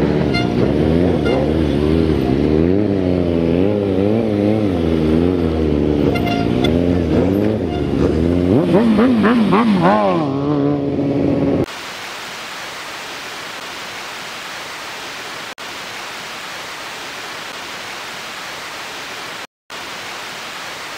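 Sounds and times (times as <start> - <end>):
motorcycle engine revving: 0.0 - 11.7
static hiss: 11.7 - 20.9.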